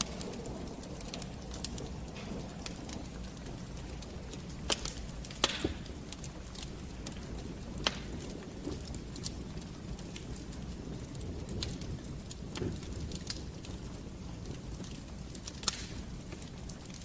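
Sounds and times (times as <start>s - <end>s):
burning logs popping: 0.0s - 17.0s
low fire rumble: 0.0s - 17.0s
wood fire crackling: 0.0s - 17.0s.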